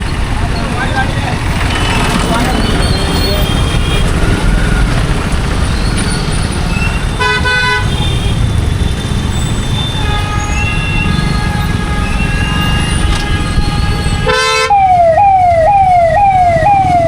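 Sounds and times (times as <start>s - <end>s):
traffic rumble: 0.0s - 17.0s
vehicle horns honking: 1.6s - 5.0s, 6.7s - 15.0s.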